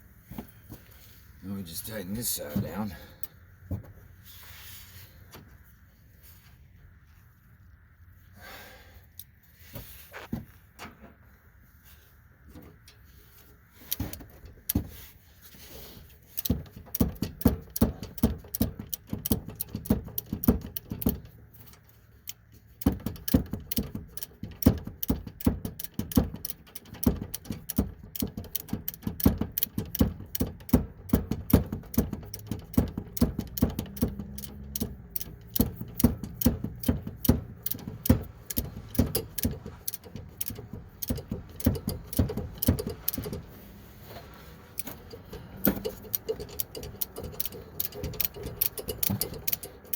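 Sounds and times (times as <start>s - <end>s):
socket ratchet clicking: 16.3s - 21.4s, 22.2s - 43.5s, 44.8s - 49.9s.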